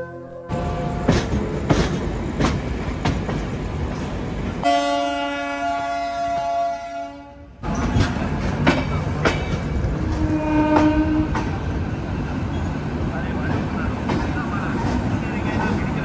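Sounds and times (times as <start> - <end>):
train wheels clattering: 0.9 - 4.2, 7.6 - 11.7
train horn: 4.6 - 7.5, 10.0 - 11.5.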